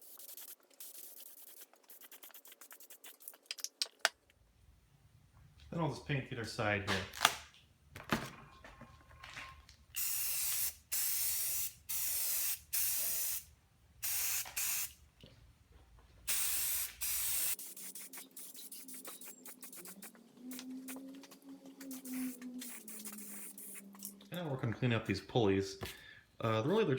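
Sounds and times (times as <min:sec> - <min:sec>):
spray can hissing: 0:00.0 - 0:03.5, 0:10.0 - 0:15.0, 0:16.3 - 0:24.1.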